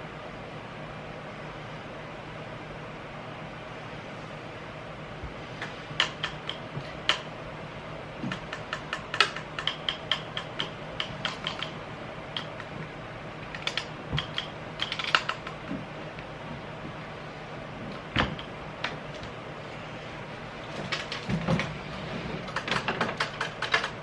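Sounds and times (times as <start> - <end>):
low background hum: 0.0 - 24.0
small hard objects clicking: 8.3 - 11.7.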